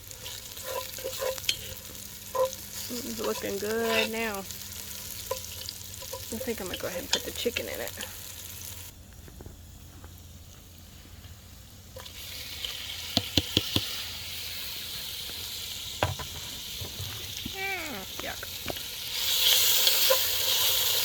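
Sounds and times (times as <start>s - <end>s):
chicken sizzling in hot pot: 0.0s - 21.0s
pot and utensils clicking: 0.2s - 4.2s.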